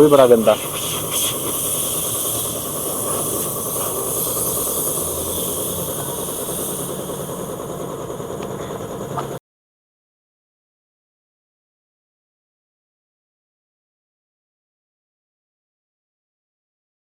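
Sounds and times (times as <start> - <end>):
steady hiss: 0.0 - 9.1.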